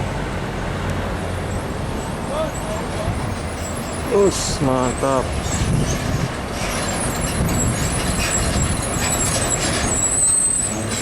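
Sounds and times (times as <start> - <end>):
truck passing by: 0.0 - 11.0
thin high whistle: 9.2 - 10.8.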